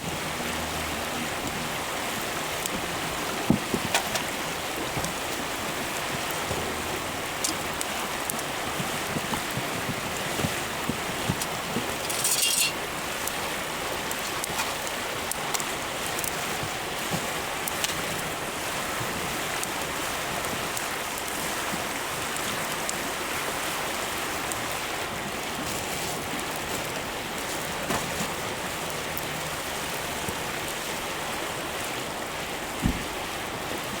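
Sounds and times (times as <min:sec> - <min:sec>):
wood fire crackling: 0:00.1 - 0:34.0
dull knock: 0:32.8 - 0:33.1.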